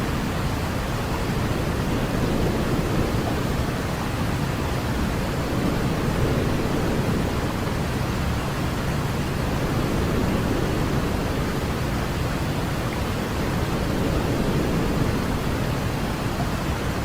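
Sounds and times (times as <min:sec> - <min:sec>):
white noise hiss: 0:00.0 - 0:17.0.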